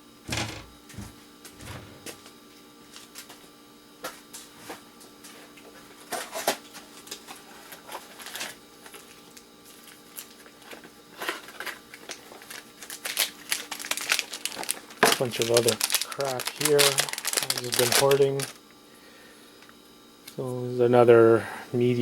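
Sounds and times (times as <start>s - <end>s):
electronic parts clattering: 0.3s - 2.2s, 10.7s - 18.6s.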